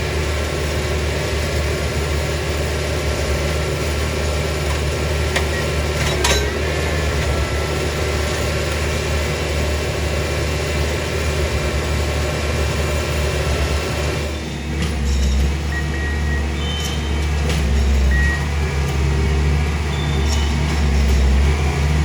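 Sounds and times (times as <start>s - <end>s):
track machine engine running: 0.0s - 22.0s.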